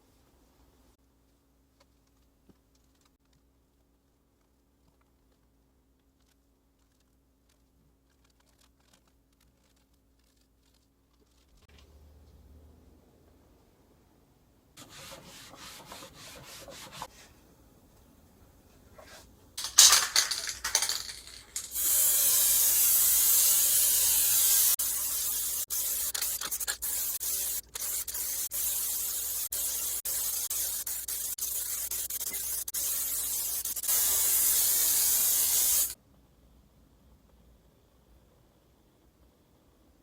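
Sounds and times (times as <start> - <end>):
aerosol spray can hissing: 21.6 - 36.0.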